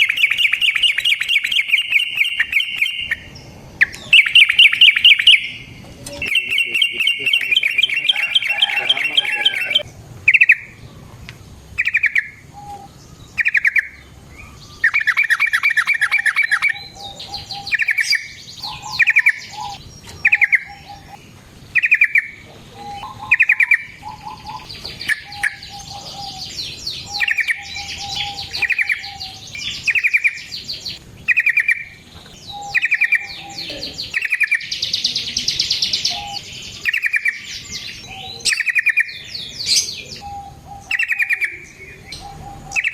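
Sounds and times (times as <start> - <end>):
bulbul rattling calls: 0.0 - 10.8, 11.7 - 34.9, 35.8 - 42.9
bird rolling trills: 0.0 - 11.1.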